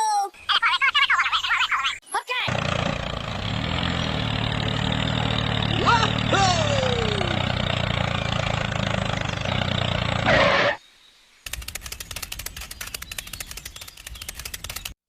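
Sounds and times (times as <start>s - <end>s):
small engine clattering: 2.5s - 10.6s, 11.5s - 15.0s
fast run of clicks: 11.4s - 15.0s.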